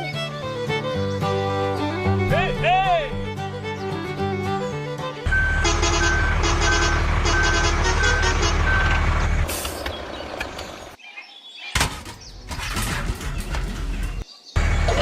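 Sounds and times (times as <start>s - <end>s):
engine rumble: 3.1s - 11.0s, 12.0s - 15.0s
truck reversing alarm beeps: 5.3s - 9.4s.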